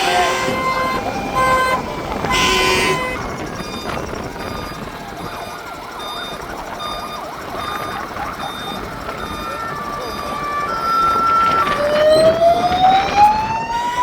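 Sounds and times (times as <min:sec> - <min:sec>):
loud horn blast: 0:00.0 - 0:03.5
fire engine sirens: 0:00.0 - 0:14.0.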